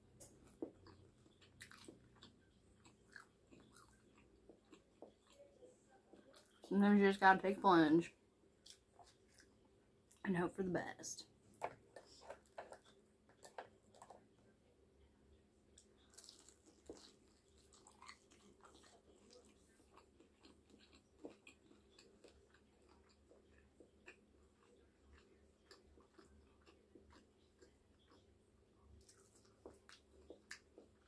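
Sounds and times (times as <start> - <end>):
chewing with wet smacks and crunches: 0.0 - 6.8, 8.6 - 10.2, 11.4 - 14.5, 15.7 - 31.0.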